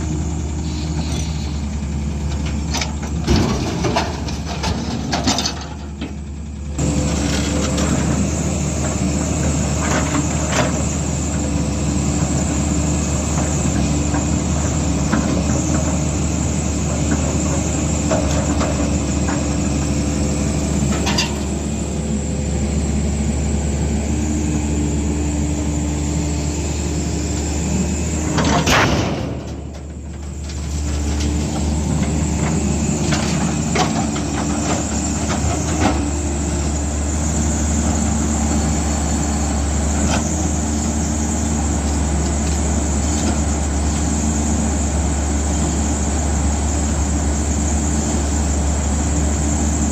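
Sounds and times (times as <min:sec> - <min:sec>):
heavy machinery diesel engine running: 0:00.0 - 0:49.9
metal clanks and knocks: 0:02.3 - 0:06.2, 0:20.8 - 0:21.5, 0:28.3 - 0:36.0.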